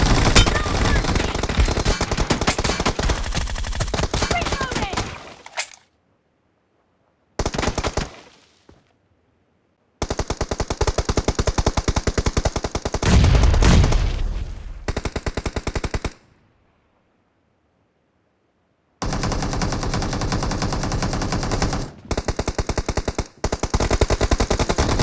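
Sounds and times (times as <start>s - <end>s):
video game automatic gunfire: 0.0s - 5.1s, 19.0s - 25.0s.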